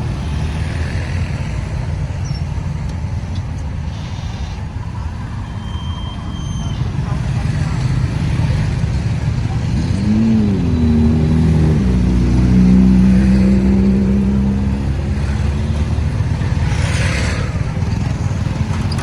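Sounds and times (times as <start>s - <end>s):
low traffic rumble: 0.0s - 19.0s
vehicle engine: 0.0s - 19.0s.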